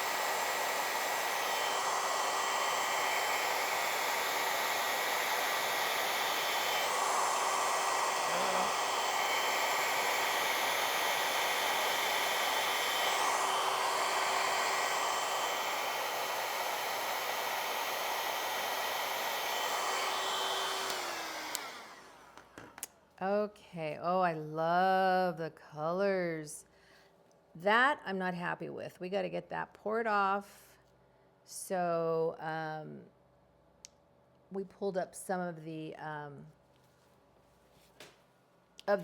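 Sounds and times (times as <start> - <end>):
hair dryer blowing air: 0.0 - 22.9
hair dryer motor winding down: 0.0 - 22.9.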